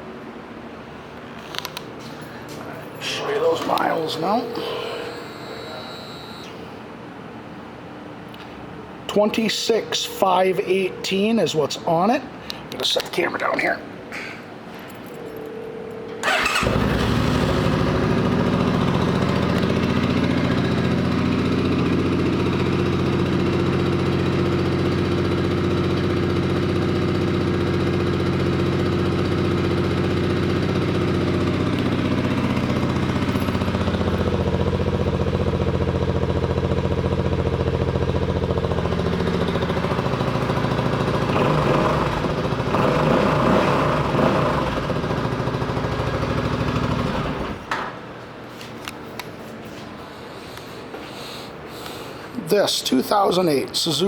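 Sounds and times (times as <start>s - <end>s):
motorcycle engine revving: 16.2s - 47.6s
motorcycle engine starting and idling: 16.2s - 47.8s.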